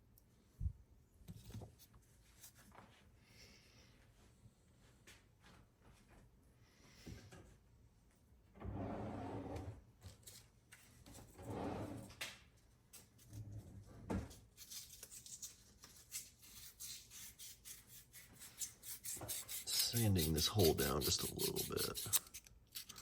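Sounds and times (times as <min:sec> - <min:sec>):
hand sanding rasping strokes: 0:16.9 - 0:23.0.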